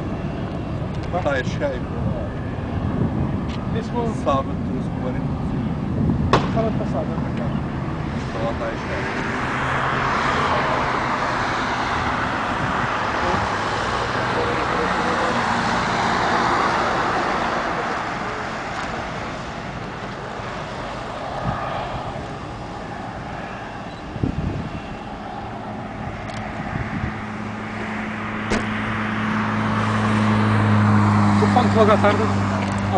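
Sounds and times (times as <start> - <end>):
jet engines roaring: 0.0 - 32.9
brief knock: 28.5 - 28.7.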